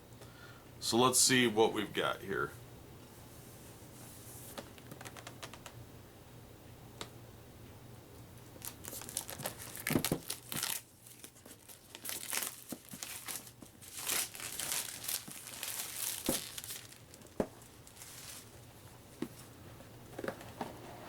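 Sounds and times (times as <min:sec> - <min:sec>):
plastic wrap crinkling: 0:08.6 - 0:18.9.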